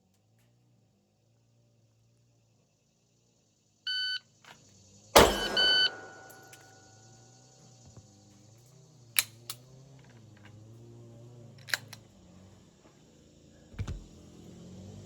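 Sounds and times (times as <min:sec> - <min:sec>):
sharp handling clicks: 0:11.6 - 0:12.0
dull thump: 0:13.8 - 0:14.1.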